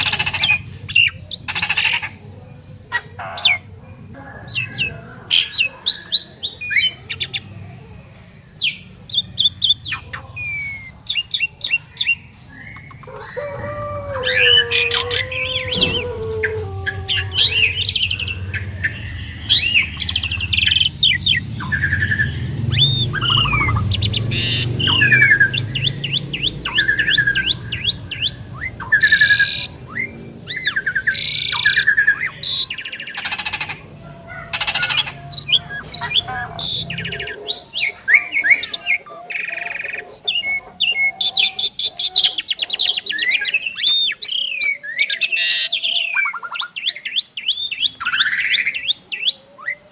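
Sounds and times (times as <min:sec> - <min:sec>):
starlings singing: 0:00.0 - 0:49.9
low rumble: 0:12.4 - 0:32.7.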